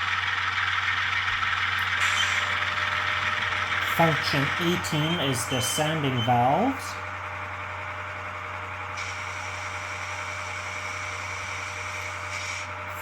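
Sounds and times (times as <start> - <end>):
diesel engine idling: 0.0 - 13.0
air hiss of sanding valves: 9.0 - 12.7.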